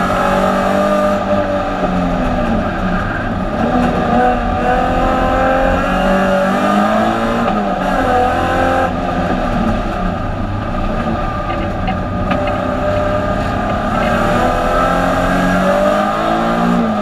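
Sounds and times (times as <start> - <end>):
race car engine revving: 0.0 - 17.0.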